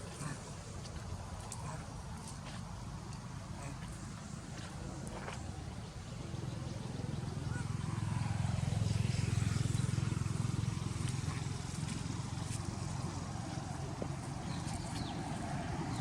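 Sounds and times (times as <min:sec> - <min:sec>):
vehicle engine droning past: 0:03.4 - 0:16.0.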